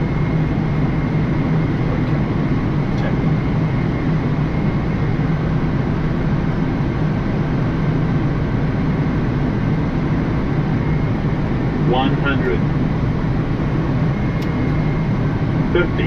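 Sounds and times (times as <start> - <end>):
airflow and engine noise: 0.0 - 16.0
faint high whine: 10.6 - 16.0.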